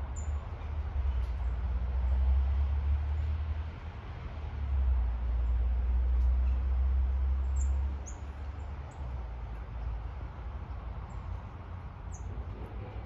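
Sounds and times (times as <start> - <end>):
small birds chirping: 7.4 - 9.1, 12.1 - 12.4.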